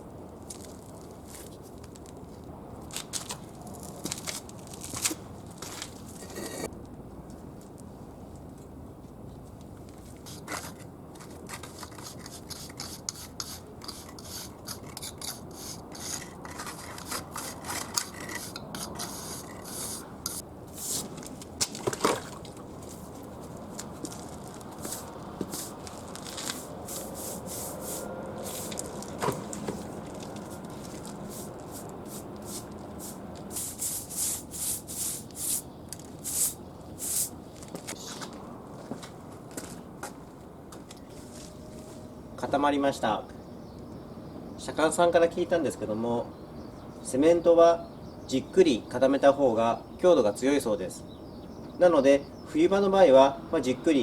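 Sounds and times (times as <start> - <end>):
trowel scraping wet mortar: 10.3 - 21.1, 30.4 - 35.6.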